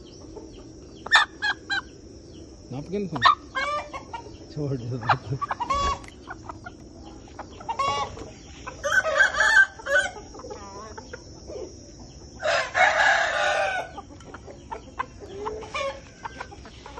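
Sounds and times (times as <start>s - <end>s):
soft clucking: 3.1s - 9.1s, 13.8s - 16.9s
rooster crowing: 7.7s - 10.8s, 12.4s - 14.1s.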